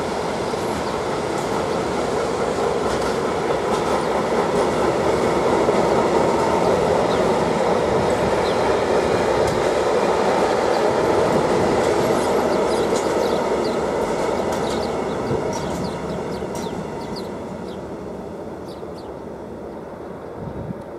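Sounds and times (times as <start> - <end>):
freight train rumbling on rails: 0.0 - 20.9.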